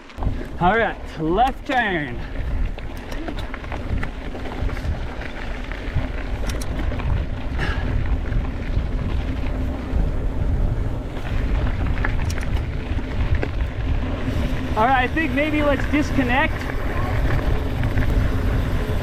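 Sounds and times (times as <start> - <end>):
mountain bike rolling on dirt: 0.0 - 19.0
wind buffeting microphone: 0.2 - 19.0
clicks and rattles: 2.8 - 4.1, 6.3 - 7.0, 12.0 - 12.7.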